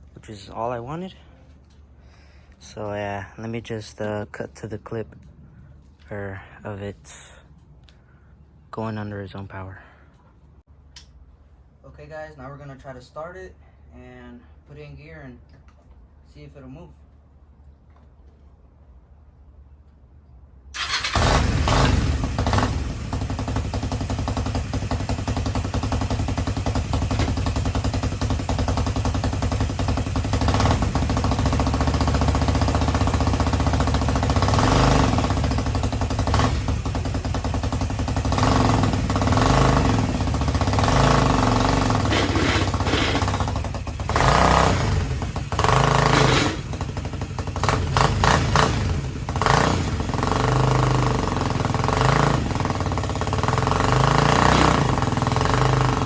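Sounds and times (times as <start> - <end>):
go-kart engine revving: 20.8 - 56.0.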